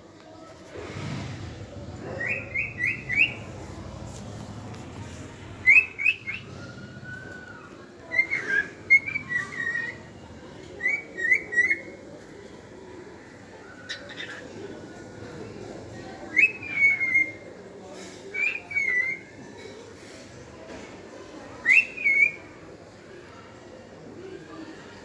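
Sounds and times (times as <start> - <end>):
cockatiel whistling: 2.2 - 3.5.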